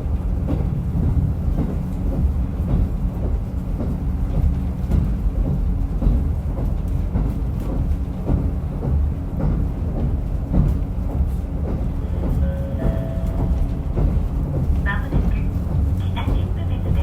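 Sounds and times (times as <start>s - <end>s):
railcar engine and wheels rumbling: 0.0s - 17.0s
brief steady tones: 12.0s - 17.0s.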